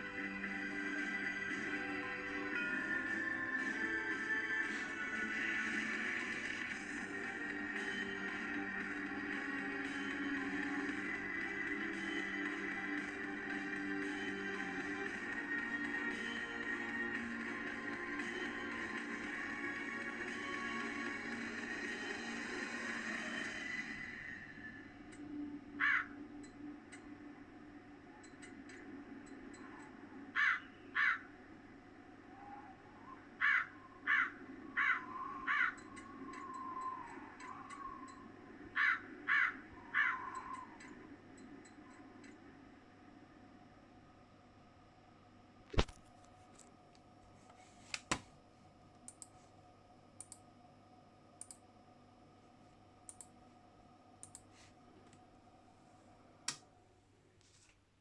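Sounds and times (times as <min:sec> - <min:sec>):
faint electrical hum: 0:22.8 - 0:58.0
harsh bird calls: 0:30.3 - 0:31.3, 0:32.3 - 0:41.0.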